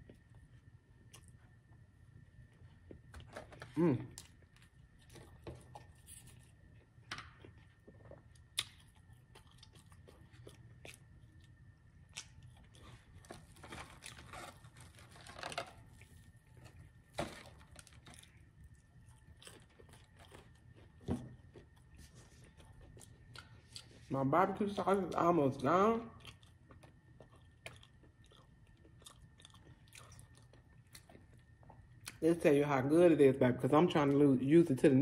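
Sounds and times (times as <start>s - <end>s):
chewing and crunching: 0.0s - 25.3s, 26.0s - 32.2s.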